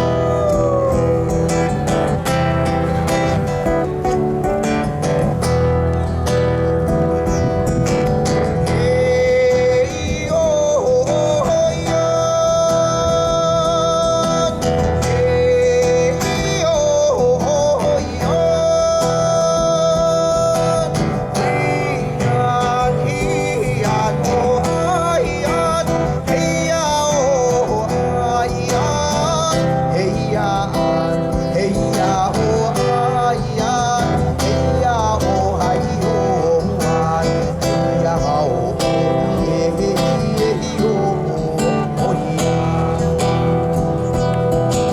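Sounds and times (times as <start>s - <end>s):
man singing: 0.0s - 44.9s
strummed acoustic guitar: 0.0s - 44.9s.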